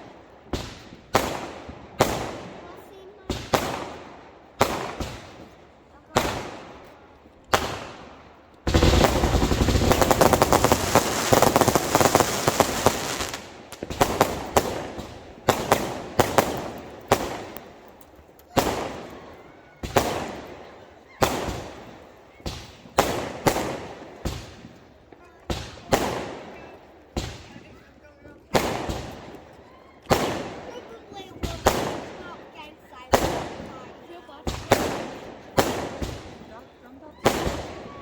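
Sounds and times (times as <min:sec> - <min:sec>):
firework bangs: 0:00.0 - 0:06.9, 0:07.5 - 0:27.8, 0:28.5 - 0:38.0
rapid crackling firework pops: 0:00.0 - 0:38.0.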